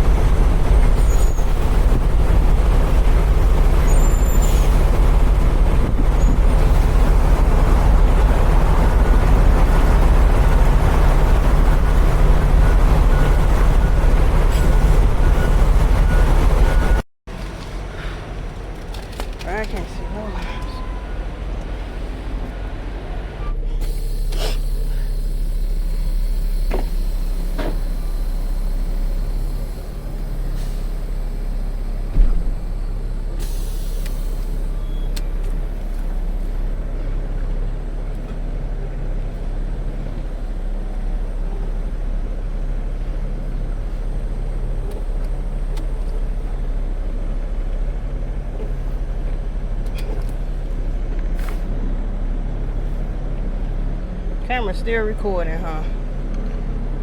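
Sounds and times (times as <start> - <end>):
diesel truck engine running: 0.0 - 57.0
sharp thump: 32.1 - 32.7.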